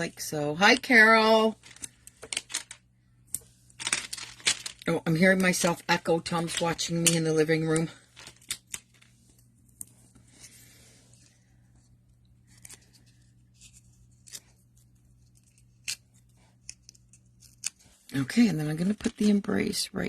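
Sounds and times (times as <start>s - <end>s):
low steady hum: 0.0s - 20.0s
paper pieces tapping and clicking: 1.6s - 4.9s.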